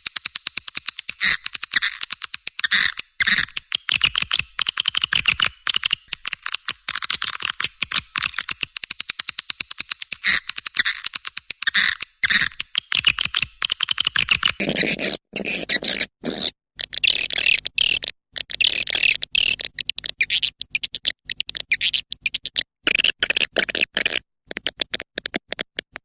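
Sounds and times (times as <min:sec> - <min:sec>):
swiftlet chirps and twitters: 0:16.8 - 0:23.1.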